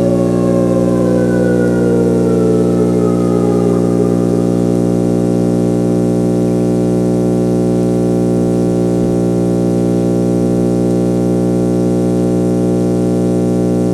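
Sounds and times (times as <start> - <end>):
synthesizer drone: 0.0 - 7.0.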